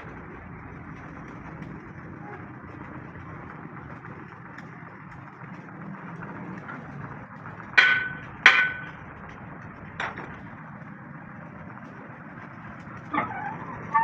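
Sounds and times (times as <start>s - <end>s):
hammer striking steel: 7.6s - 9.2s.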